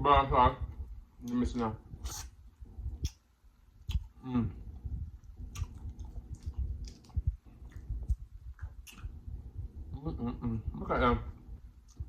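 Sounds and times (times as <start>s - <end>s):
wet chewing: 2.0s - 9.5s.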